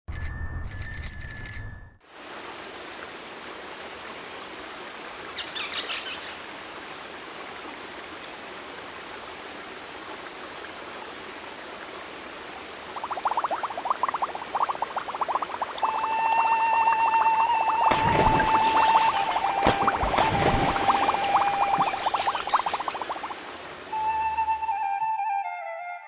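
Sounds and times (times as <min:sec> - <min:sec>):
high ringing tones: 0:00.1 - 0:02.0
running water rushing: 0:02.1 - 0:24.9
birds chirping: 0:13.2 - 0:24.7.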